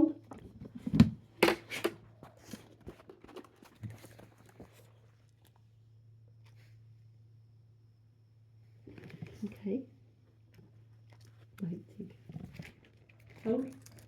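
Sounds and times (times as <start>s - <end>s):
steady low hum: 0.0s - 14.0s
crinkly rustles: 2.1s - 5.7s, 10.6s - 14.0s.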